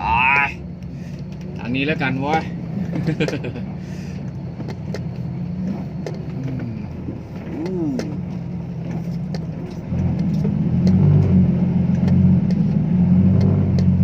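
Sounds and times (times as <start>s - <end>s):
truck diesel engine accelerating: 0.0s - 14.0s.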